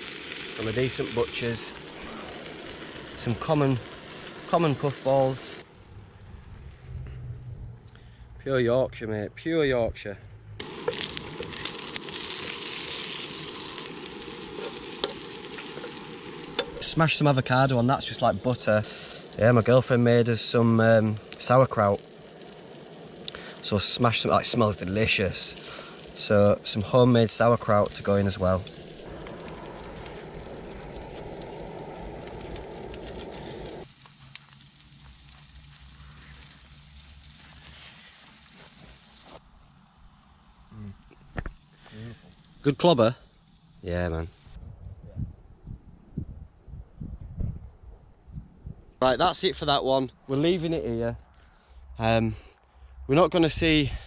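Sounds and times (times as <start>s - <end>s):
bacon sizzling in a pan: 0.0s - 5.7s, 10.6s - 44.6s.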